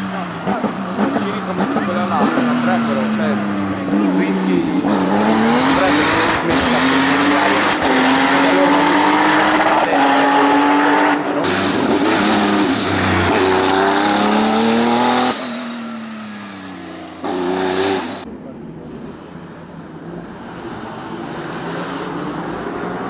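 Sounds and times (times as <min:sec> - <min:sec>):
race car engines revving: 0:00.0 - 0:23.0.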